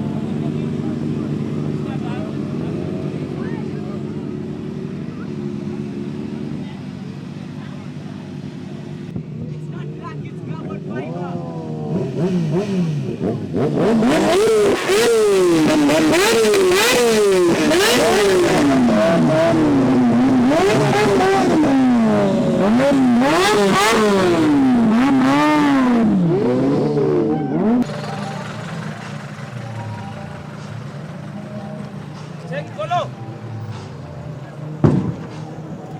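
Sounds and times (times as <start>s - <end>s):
car engine revving hard: 11.8s - 30.2s.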